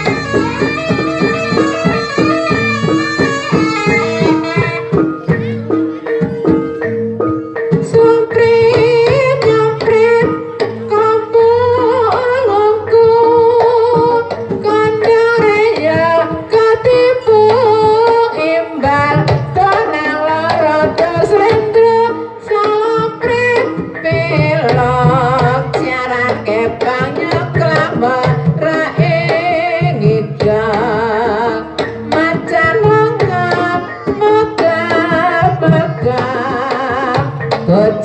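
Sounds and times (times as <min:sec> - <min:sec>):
gamelan-style percussion: 0:00.0 - 0:38.0
hand drums: 0:00.0 - 0:38.0
person singing wavering vocal: 0:24.2 - 0:38.0.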